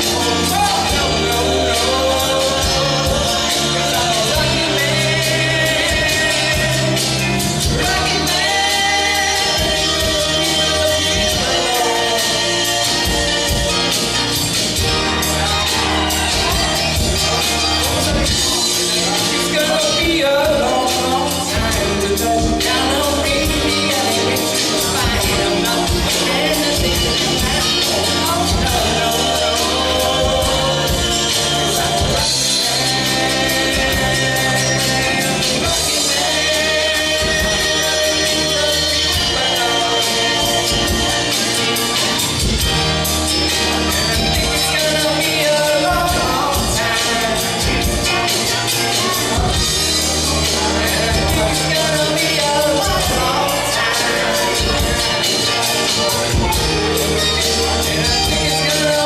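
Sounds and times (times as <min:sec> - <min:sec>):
drum beat: 0:00.0 - 0:45.2
live band playing: 0:00.0 - 0:59.0
person singing: 0:00.0 - 0:59.0.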